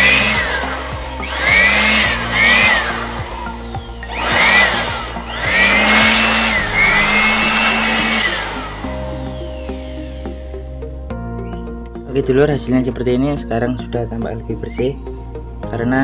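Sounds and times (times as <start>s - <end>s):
rush of air: 0.0s - 11.0s
electric blower motor whining: 0.0s - 11.5s
quiet background music: 0.0s - 16.0s.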